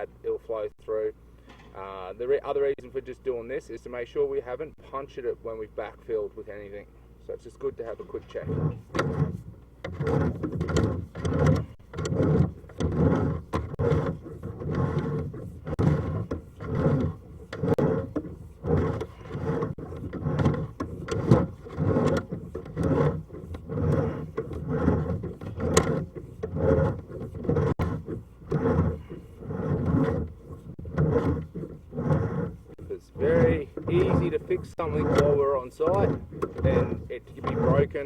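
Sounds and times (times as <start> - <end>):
push-rod rubbing and clicking: 7.6 - 38.0.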